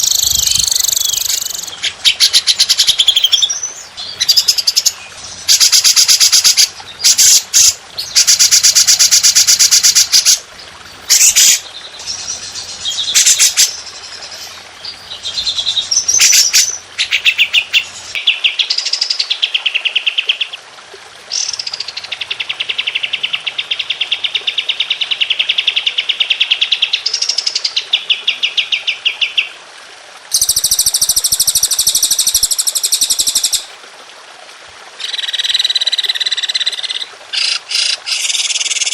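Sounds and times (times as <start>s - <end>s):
songbirds trilling: 0.0s - 19.2s.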